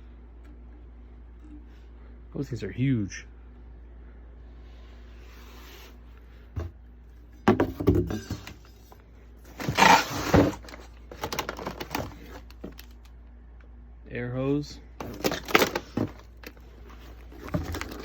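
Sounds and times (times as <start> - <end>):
packaging rustling: 9.5 - 13.1, 15.0 - 18.0.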